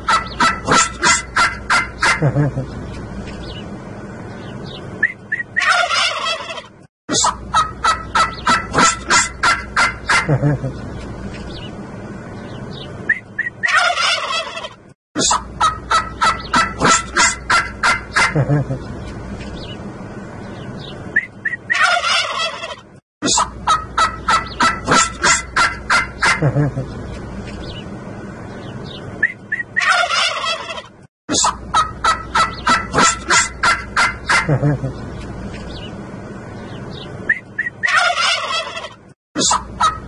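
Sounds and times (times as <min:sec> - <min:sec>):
turkey chirps: 0:00.0 - 0:02.3, 0:05.0 - 0:10.4, 0:13.1 - 0:18.4, 0:21.2 - 0:26.5, 0:29.2 - 0:34.6, 0:37.3 - 0:40.0
turkeys gobbling: 0:00.0 - 0:02.7, 0:05.0 - 0:10.8, 0:13.1 - 0:18.9, 0:21.4 - 0:27.0, 0:29.2 - 0:35.0, 0:37.3 - 0:40.0.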